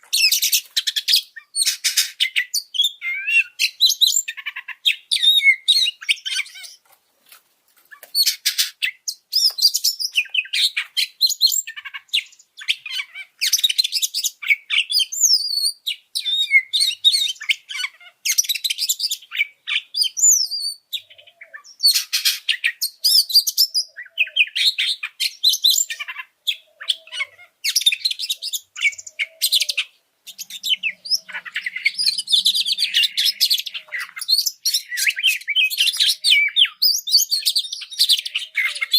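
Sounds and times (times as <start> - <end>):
magpie-robin singing rapid high notes: 8.2 - 38.9.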